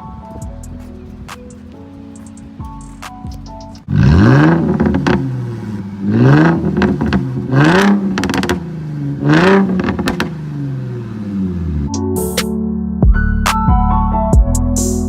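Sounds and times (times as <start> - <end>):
exhaust crackles: 0.5 - 12.0
car engine revving: 3.9 - 12.0.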